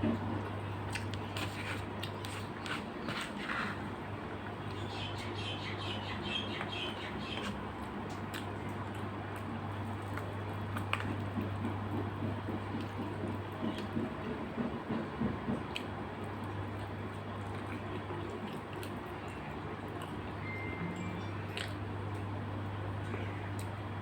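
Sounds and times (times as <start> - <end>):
person chewing wetly: 0.2 - 4.8, 7.4 - 14.0, 15.6 - 20.3, 21.5 - 22.2.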